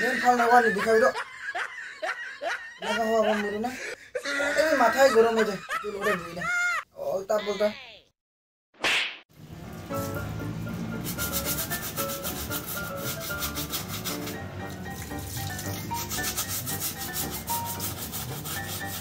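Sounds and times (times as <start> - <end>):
scouring pad scrubbing metal cup: 11.0 - 19.0.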